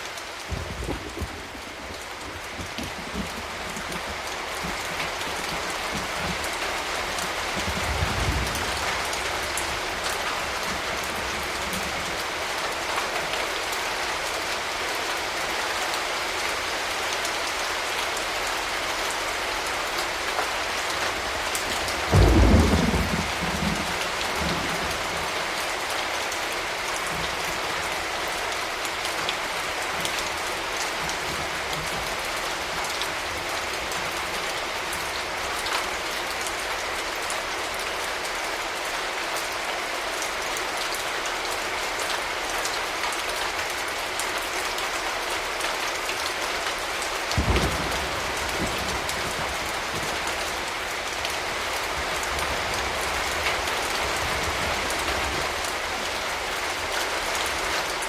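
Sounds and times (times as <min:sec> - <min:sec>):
steady rain: 0:00.0 - 0:58.0
thunder clap: 0:22.0 - 0:25.0, 0:47.4 - 0:50.2
thunder rumble: 0:22.0 - 0:25.4, 0:47.4 - 0:50.3.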